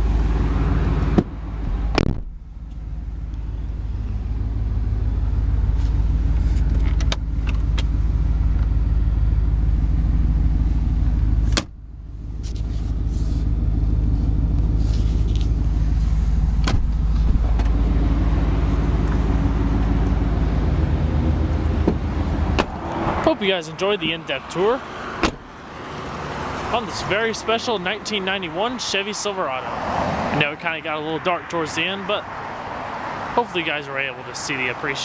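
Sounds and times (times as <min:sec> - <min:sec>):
truck engine idling: 0:00.0 - 0:29.6.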